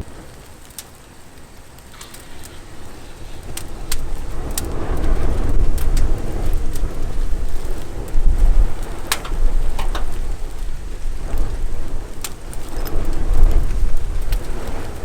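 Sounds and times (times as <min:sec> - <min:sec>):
thermite burning with crackling roar: 0:00.0 - 0:15.0
sharp pops: 0:01.8 - 0:04.7, 0:08.6 - 0:10.7.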